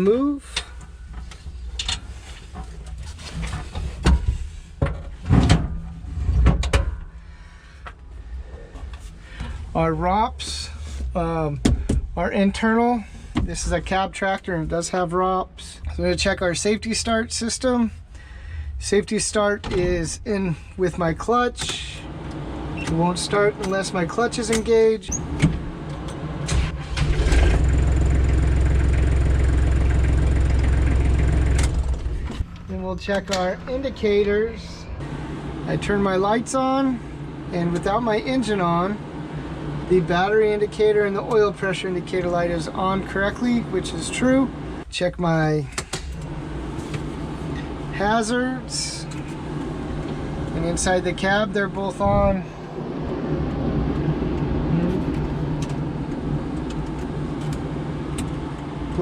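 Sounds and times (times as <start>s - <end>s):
tractor diesel engine idling: 25.8s - 44.8s.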